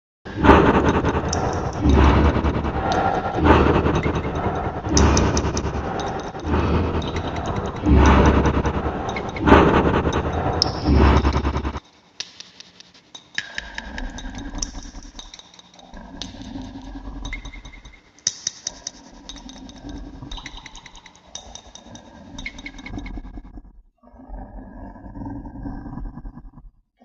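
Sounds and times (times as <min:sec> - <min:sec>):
low hum: 0:00.3 - 0:11.8
creature clicking and rattling: 0:00.4 - 0:23.0.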